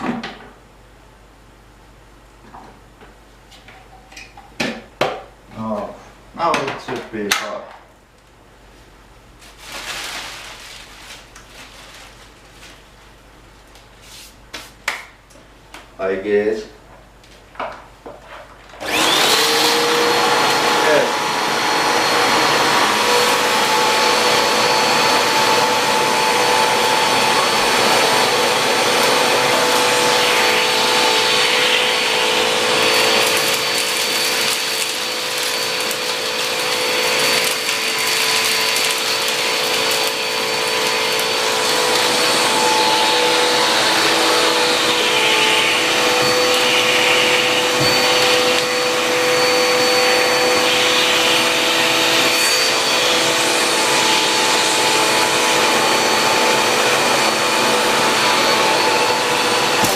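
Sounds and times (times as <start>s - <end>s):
vacuum cleaner running: 18.7s - 59.9s.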